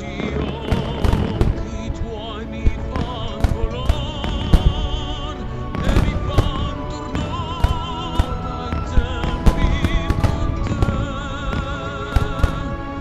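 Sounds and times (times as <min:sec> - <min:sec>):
loud music with singer: 0:00.0 - 0:13.0.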